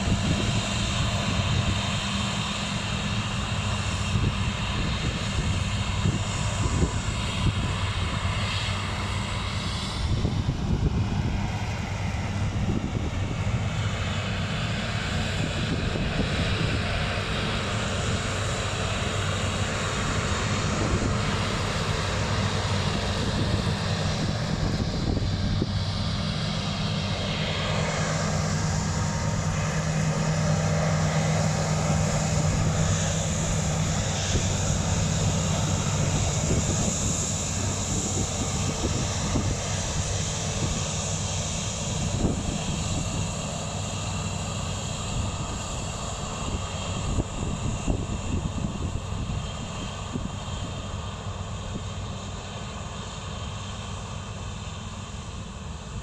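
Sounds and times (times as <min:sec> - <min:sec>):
heavy machinery diesel engines: 0:00.0 - 0:56.0.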